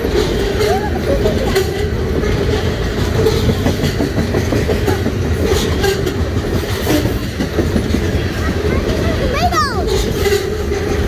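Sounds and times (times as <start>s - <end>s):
freight train low rumble: 0.0s - 11.0s
train wheels clacking over rail joints: 0.0s - 11.0s.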